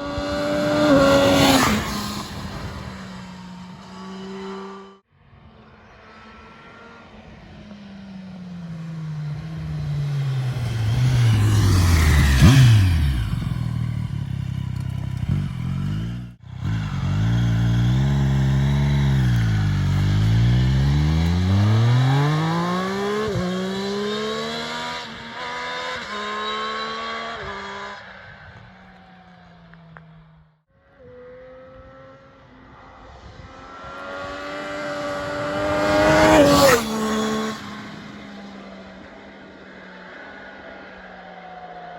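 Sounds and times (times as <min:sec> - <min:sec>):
motorcycle engine passing by: 0:00.0 - 0:41.9.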